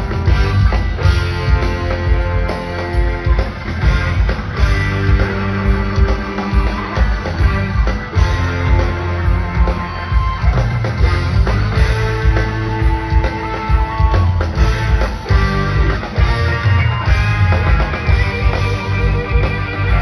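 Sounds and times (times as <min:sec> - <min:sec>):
electric guitars holding long notes: 0:00.0 - 0:20.0
live rock band playing: 0:00.0 - 0:20.0.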